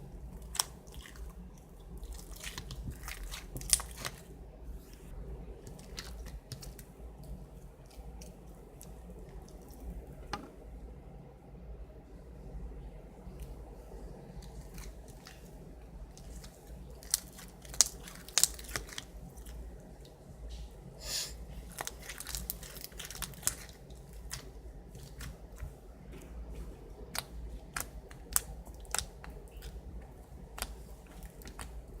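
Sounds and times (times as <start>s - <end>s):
foam slime crackling: 0.2s - 5.1s, 14.2s - 20.0s, 21.6s - 32.0s.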